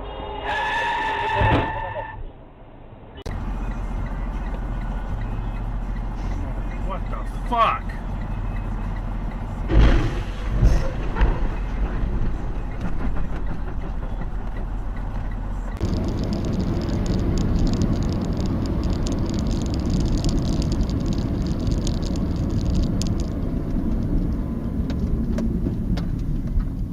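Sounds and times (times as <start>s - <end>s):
vehicle road and engine noise: 2.3s - 26.9s
loud thumps: 9.7s - 14.1s.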